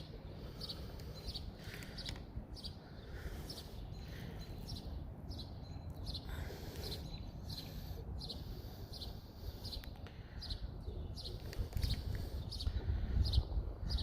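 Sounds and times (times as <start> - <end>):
bird chirping: 0.0 - 14.0
wind rumble on microphone: 10.5 - 14.0.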